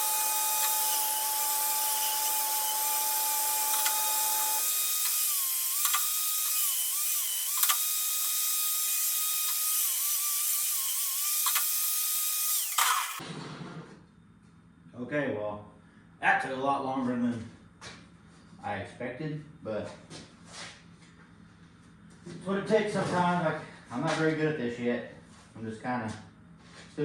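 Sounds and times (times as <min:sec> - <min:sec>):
angle grinder grinding steel: 0:00.0 - 0:13.2
sharp clicks: 0:07.5 - 0:07.9.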